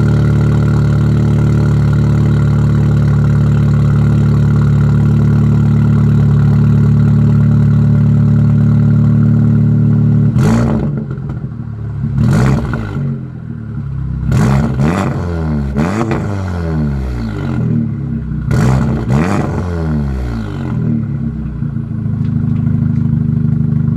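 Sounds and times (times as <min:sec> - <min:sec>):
car engine idling: 0:00.0 - 0:12.4, 0:20.3 - 0:23.9
engine rev bursts: 0:12.2 - 0:13.2, 0:14.3 - 0:17.8, 0:18.4 - 0:21.0.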